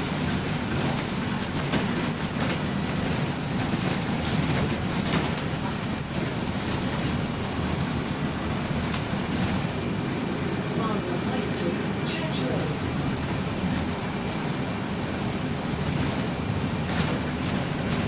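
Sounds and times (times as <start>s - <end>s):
bus engine rumble: 0.0s - 18.0s
high steady whine: 9.3s - 14.6s.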